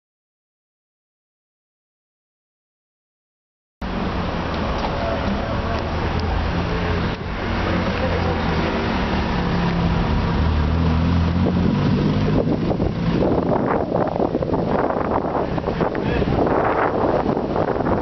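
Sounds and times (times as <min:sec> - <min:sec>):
car engine driving past: 0:03.8 - 0:17.4
wind buffeting microphone: 0:11.2 - 0:18.0.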